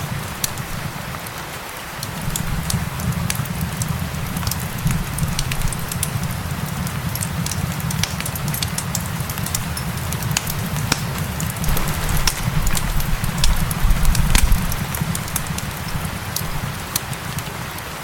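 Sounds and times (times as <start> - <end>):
rain hissing: 0.0 - 18.0
fireplace crackling and popping: 0.2 - 1.0, 2.0 - 18.0
steady low rumble: 10.5 - 16.6.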